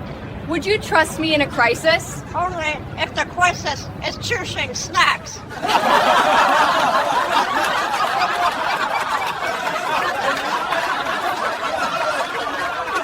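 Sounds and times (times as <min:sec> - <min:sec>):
people laughing and snickering: 0:01.8 - 0:13.0.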